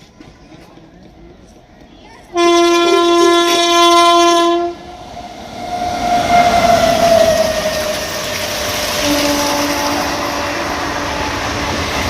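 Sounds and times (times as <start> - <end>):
train passing at speed: 0.0 - 12.0
train horn blast: 2.3 - 5.0, 5.6 - 8.2, 8.9 - 12.0.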